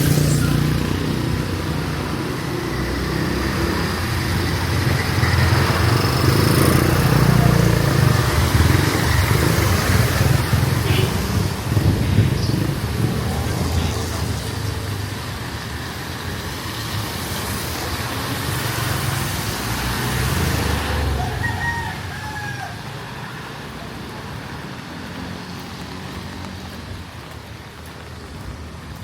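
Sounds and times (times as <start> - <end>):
hiss of wet street: 0.0 - 29.0
vehicle rumbling past: 0.0 - 29.0
rooster crowing: 20.7 - 23.1.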